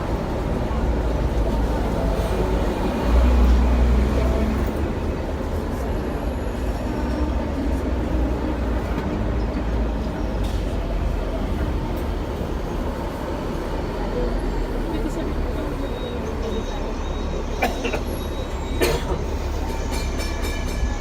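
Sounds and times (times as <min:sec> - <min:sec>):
tram wheels rumbling: 0:00.0 - 0:21.0.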